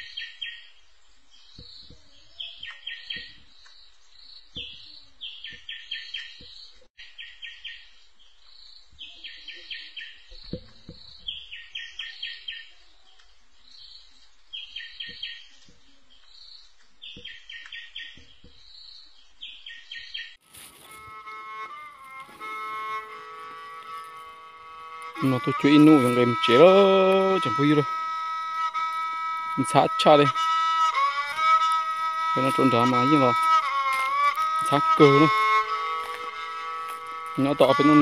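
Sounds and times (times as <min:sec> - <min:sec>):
bird calling sharp notes: 0:20.5 - 0:38.0.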